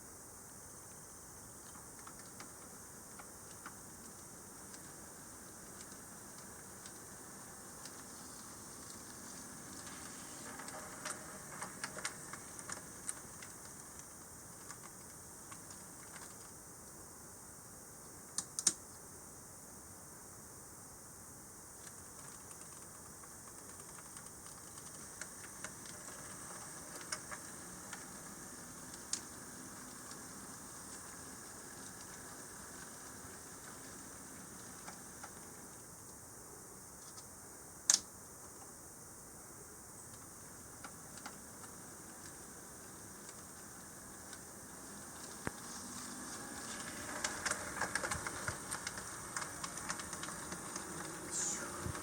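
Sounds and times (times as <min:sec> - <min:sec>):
faint steady background: 0:00.0 - 0:52.0
model train clicking on track: 0:01.5 - 0:16.6, 0:21.8 - 0:36.2, 0:40.1 - 0:52.0.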